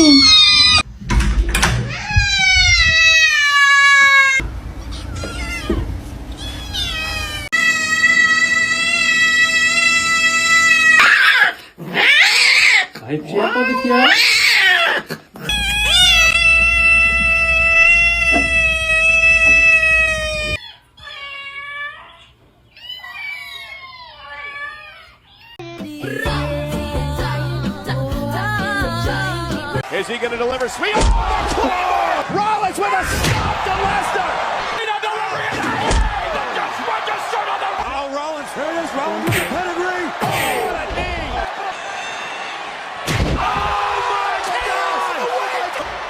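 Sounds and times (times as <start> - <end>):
cat meowing: 1.9 - 12.9, 13.5 - 26.2.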